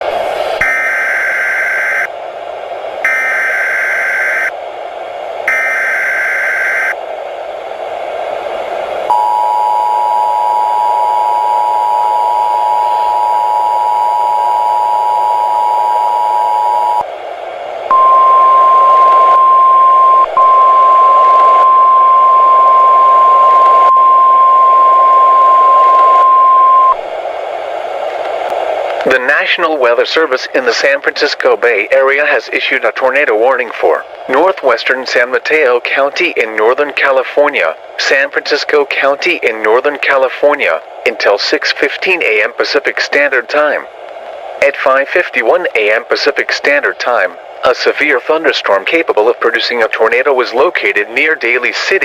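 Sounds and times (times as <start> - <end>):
radio static hiss: 0.0 - 2.2, 3.0 - 4.6, 5.4 - 7.1, 7.7 - 17.2, 17.8 - 52.0
single-pitch warning alarm tone: 0.6 - 2.1, 3.0 - 4.6, 5.5 - 7.0, 9.1 - 17.0, 17.9 - 27.0
digital header screech: 3.1 - 4.5, 5.5 - 7.0
two-note attention tone: 17.9 - 22.9.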